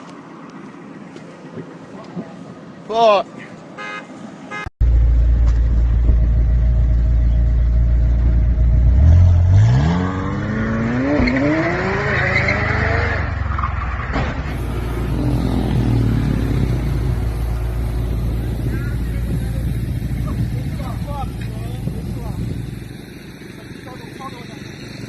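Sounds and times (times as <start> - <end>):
car engine revving: 4.8 - 25.0
tyres spinning hiss: 14.5 - 22.8.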